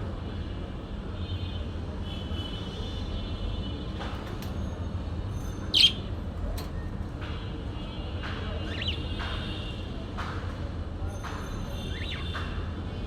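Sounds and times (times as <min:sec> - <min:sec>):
small bird chirping: 0:05.6 - 0:06.1, 0:08.6 - 0:09.2, 0:11.7 - 0:12.5.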